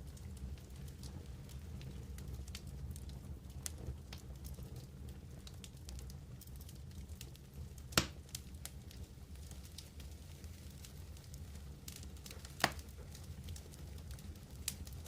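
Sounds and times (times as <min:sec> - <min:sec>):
campfire crackling: 0:00.0 - 0:15.0
loud fire pop: 0:08.0 - 0:08.2.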